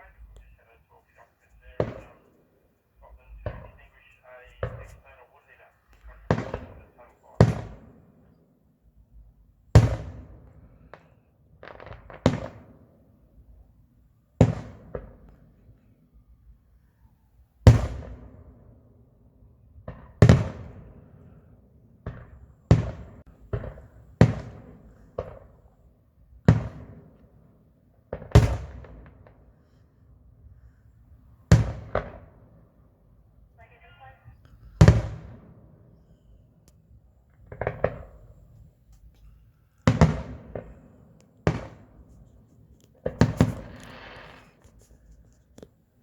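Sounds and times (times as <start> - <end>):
fireworks shells bursting: 39.8 - 45.7.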